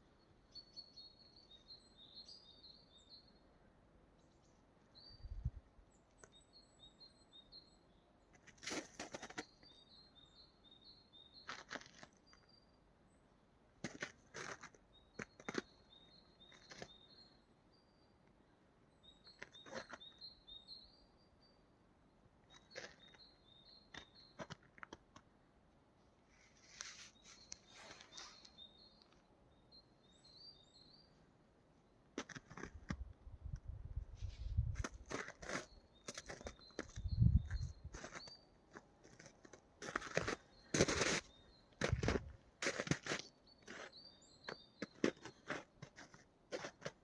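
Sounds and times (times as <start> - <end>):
small songbird singing: 0.0 - 3.5, 4.2 - 8.1, 9.3 - 11.6, 14.9 - 18.3, 18.9 - 21.7, 22.5 - 24.5, 26.4 - 31.2, 33.4 - 38.6, 43.4 - 45.5.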